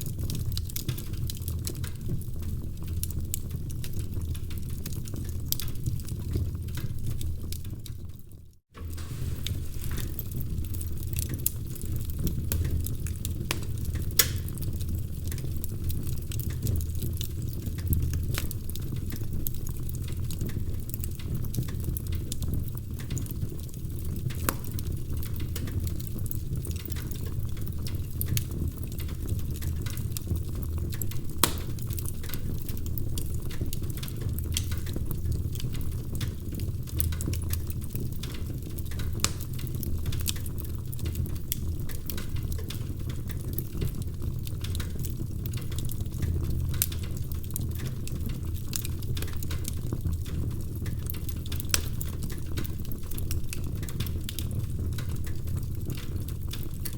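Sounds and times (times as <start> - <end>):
low rumble of flames: 0.0 - 56.9
wood fire crackling: 0.0 - 56.9
sharp fire pops: 8.8 - 15.5, 31.3 - 32.5.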